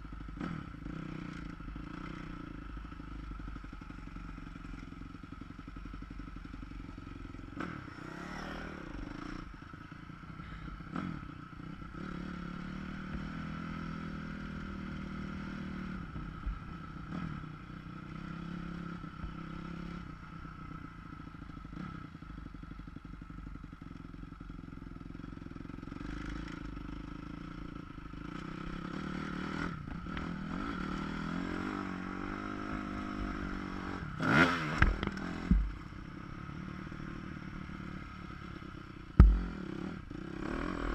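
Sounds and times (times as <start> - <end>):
muffled dirt bike engine revving: 0.0 - 40.9
bike rattles and knocks: 34.8 - 35.8, 39.2 - 39.5.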